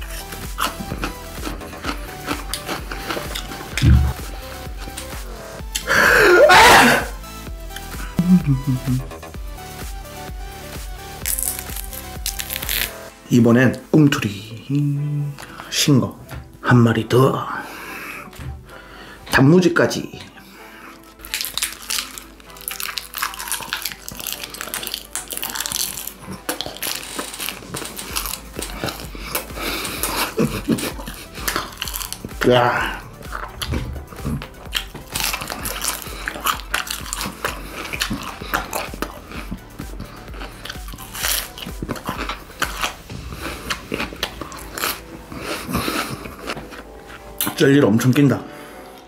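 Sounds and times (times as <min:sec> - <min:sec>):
chewing crunches and clicks: 0:00.0 - 0:05.9, 0:11.2 - 0:13.0, 0:20.9 - 0:32.4, 0:33.2 - 0:47.6
faint background music: 0:00.0 - 0:49.0.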